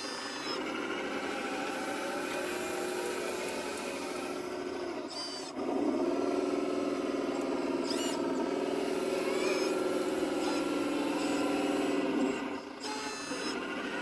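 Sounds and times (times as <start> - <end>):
model motors and hydraulic pump hum: 0.0 - 14.0.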